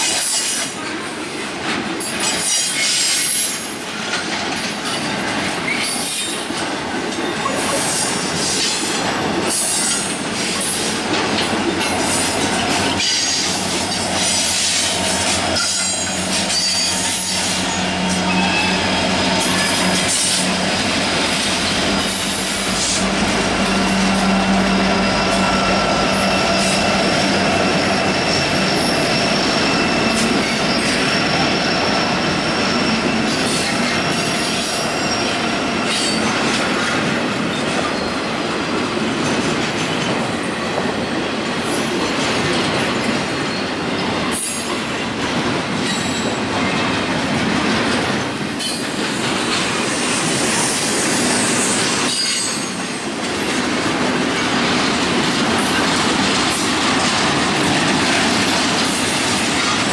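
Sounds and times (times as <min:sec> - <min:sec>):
freight train cars rolling past: 0:00.0 - 0:59.9
wheels clicking over rail joints: 0:01.7 - 0:29.2, 0:51.8 - 0:59.9
high-pitched wheel squeal: 0:12.8 - 0:36.2.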